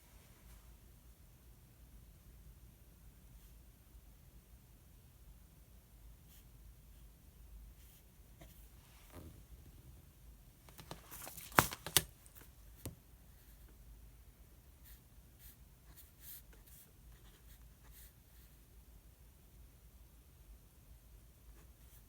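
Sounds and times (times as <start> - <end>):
paper rustling: 10.6 - 12.9.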